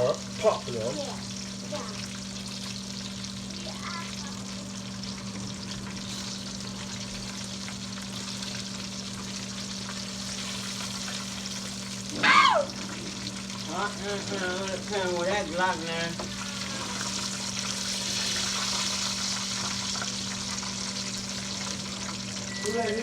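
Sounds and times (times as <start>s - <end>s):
chicken sizzling in hot oil: 0.0s - 23.0s
low steady hum: 0.0s - 23.0s
person crying out: 12.1s - 13.0s
person speaking: 22.5s - 23.0s.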